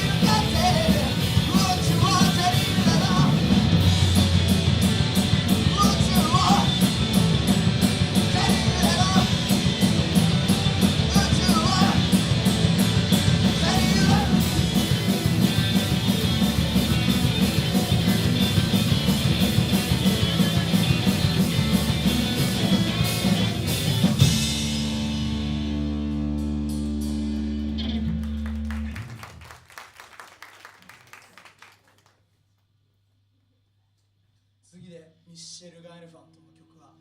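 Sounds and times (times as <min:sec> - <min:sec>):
live punk rock band: 0:00.0 - 0:29.5
person singing: 0:11.0 - 0:12.2, 0:13.5 - 0:14.6.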